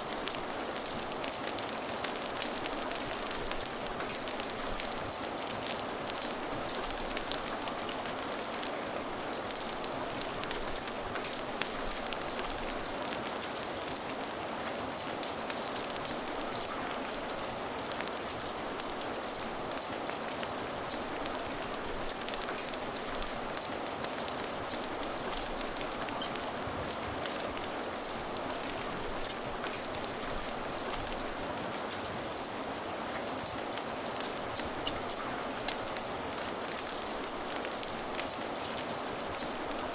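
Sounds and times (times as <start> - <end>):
fire popping and crackling: 0.0 - 32.4, 33.3 - 39.9
steady rain patter: 0.0 - 39.9.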